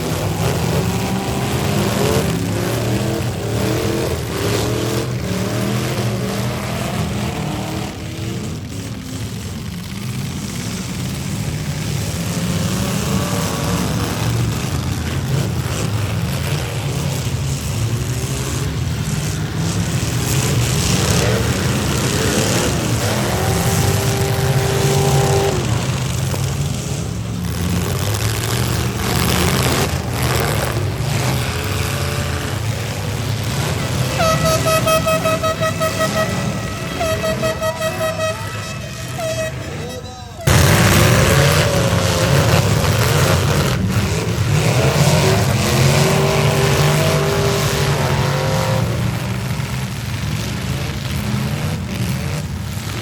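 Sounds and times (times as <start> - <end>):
car engines rumbling: 0.0 - 53.0
car horn: 20.7 - 25.8, 33.6 - 41.6
cars colliding bangs: 40.5 - 47.1.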